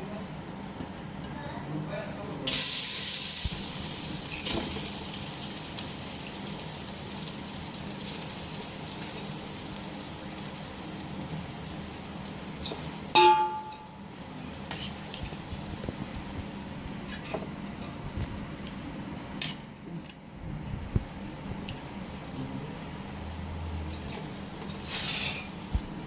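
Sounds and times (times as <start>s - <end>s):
food sizzling in oil: 2.5s - 19.8s, 20.6s - 26.0s
metal utensil clanking pot: 12.6s - 14.0s.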